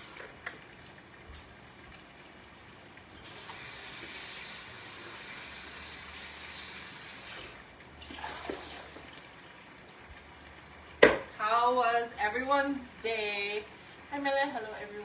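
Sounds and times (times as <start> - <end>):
kitchen tap running: 0.0 - 11.6
light knocks: 11.0 - 11.4.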